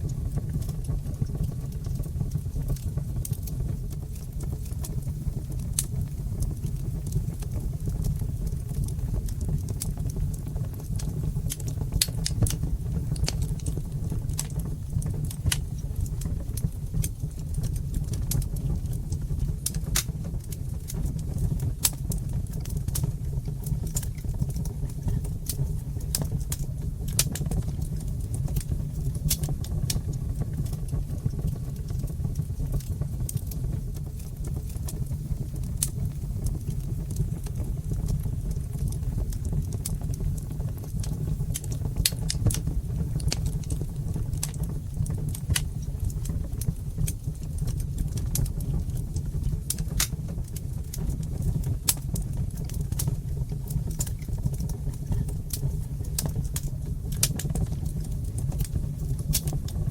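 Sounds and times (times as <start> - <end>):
fireplace fire crackling: 0.0 - 59.9
sharp pops of fire: 23.9 - 30.0, 41.5 - 48.9, 49.7 - 53.1, 53.9 - 59.6.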